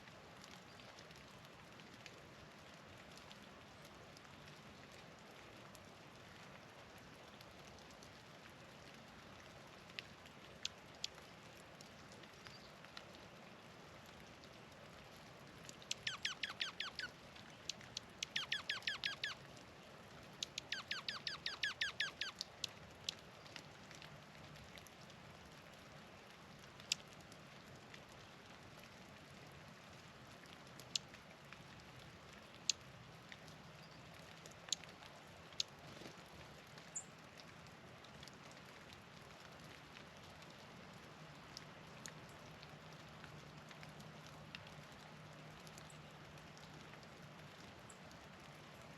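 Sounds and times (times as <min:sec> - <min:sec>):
songbird down-slurred song: 0:15.9 - 0:19.4, 0:20.4 - 0:22.3.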